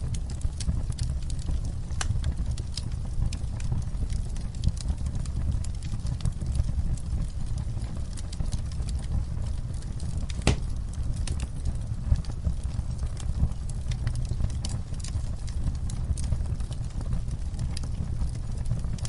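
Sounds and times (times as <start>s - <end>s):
campfire crackling: 0.0s - 19.0s
loud fire pop: 10.4s - 10.8s.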